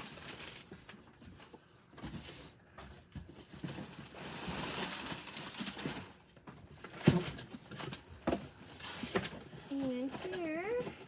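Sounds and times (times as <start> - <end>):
packaging rustle: 3.3 - 11.0.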